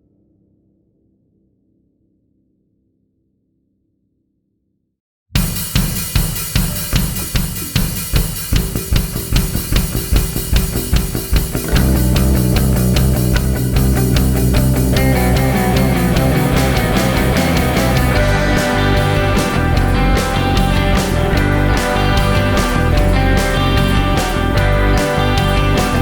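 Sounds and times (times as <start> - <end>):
drum kit beat: 5.4 - 26.0
rock band playing: 5.4 - 26.0.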